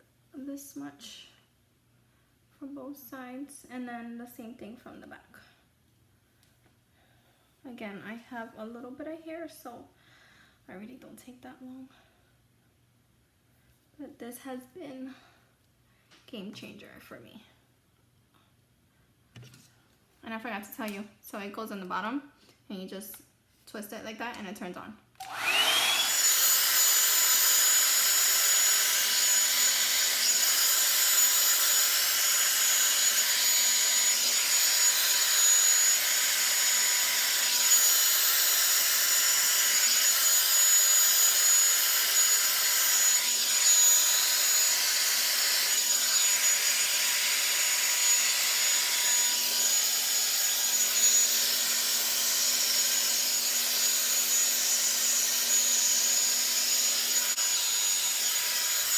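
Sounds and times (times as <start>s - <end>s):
hot-air brush dryer whining: 25.2s - 58.9s.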